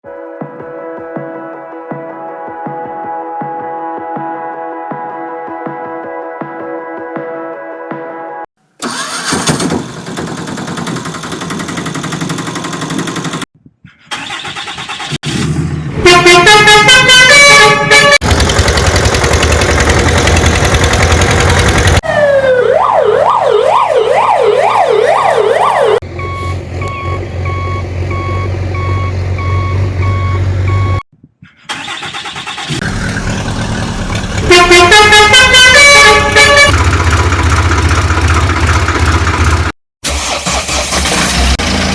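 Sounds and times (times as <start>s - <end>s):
vehicle engine noise: 8.8s - 13.5s, 17.6s - 22.0s, 26.0s - 31.0s, 32.4s - 41.9s
melodic multi-note horn: 16.0s - 18.2s, 34.5s - 36.7s
siren rising and falling: 21.9s - 31.0s.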